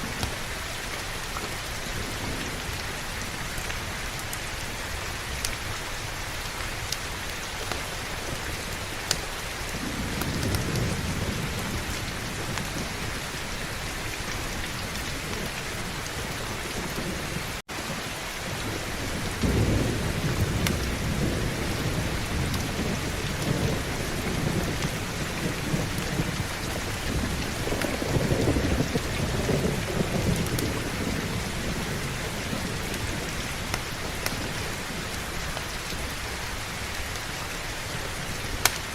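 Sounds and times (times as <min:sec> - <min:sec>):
heavy rain: 0:00.0 - 0:38.9
thunder rumbling: 0:07.9 - 0:36.1.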